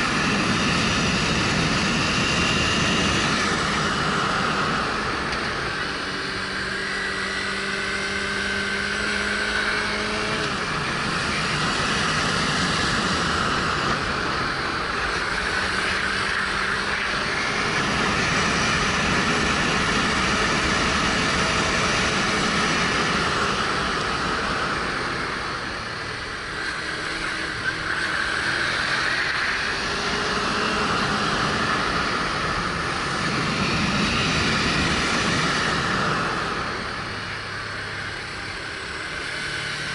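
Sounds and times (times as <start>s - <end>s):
wind rushing over microphone: 0.0s - 38.7s
motorcycle engine revving: 0.0s - 39.9s.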